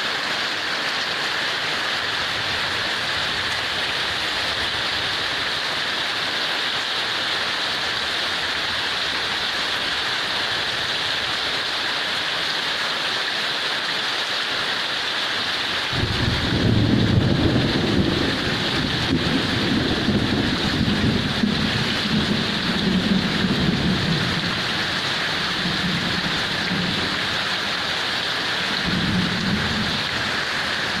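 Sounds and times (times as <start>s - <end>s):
heavy rain falling: 0.0s - 31.0s
low rumble of thunder: 15.9s - 27.5s, 28.7s - 31.0s.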